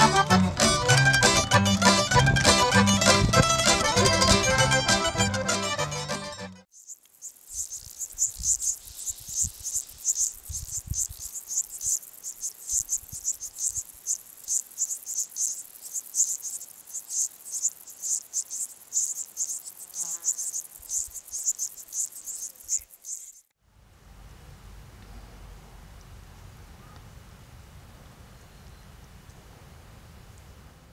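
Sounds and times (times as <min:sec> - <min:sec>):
low thumps: 0:00.0 - 0:05.8
cricket chirping: 0:06.7 - 0:23.5.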